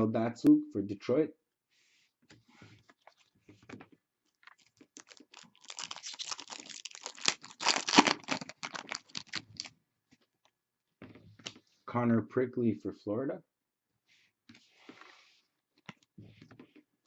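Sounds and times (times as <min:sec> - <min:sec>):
cards and packaging rustling: 0:04.5 - 0:09.7.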